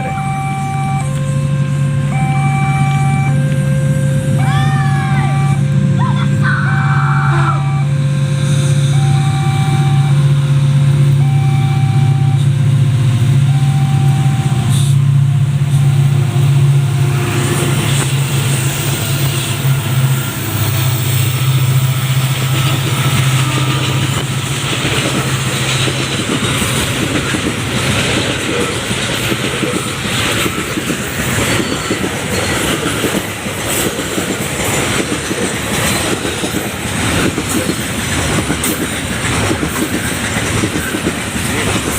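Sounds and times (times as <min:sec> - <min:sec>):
two-tone warning alarm beeps: 0:00.0 - 0:08.1, 0:08.8 - 0:10.4, 0:11.2 - 0:12.6, 0:13.4 - 0:14.9
locomotive engine drone: 0:00.0 - 0:41.9
wagon wheels clacking over rails: 0:22.2 - 0:41.9.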